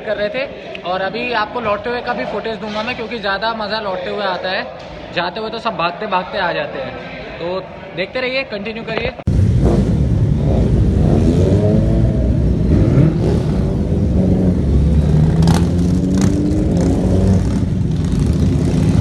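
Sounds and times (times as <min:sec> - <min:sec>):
motorcycle engine accelerating: 0:09.3 - 0:19.0.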